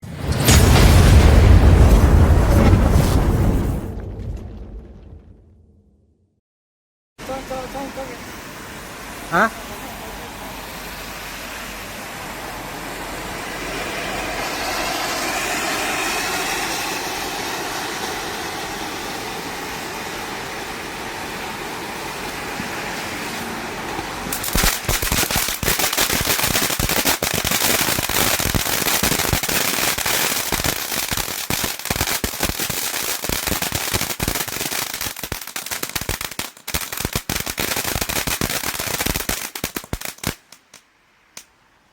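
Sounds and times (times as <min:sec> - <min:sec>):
ground firework spraying hiss: 0:07.2 - 0:40.8
firework rapid crackling: 0:12.7 - 0:22.5, 0:24.2 - 0:40.8.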